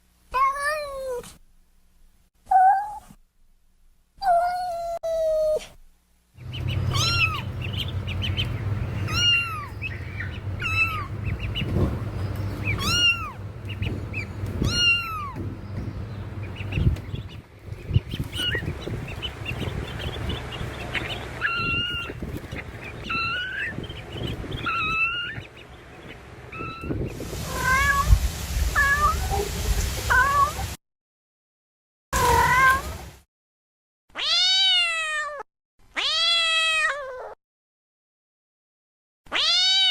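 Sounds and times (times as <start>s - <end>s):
low background hum: 0.0s - 30.7s
kittens meowing: 6.8s - 7.6s, 9.0s - 11.9s, 12.6s - 15.6s, 18.2s - 19.0s, 21.0s - 23.8s, 24.6s - 25.5s, 26.5s - 28.1s, 34.2s - 35.4s, 36.0s - 37.4s, 39.3s - 39.9s
hiss: 27.2s - 30.8s.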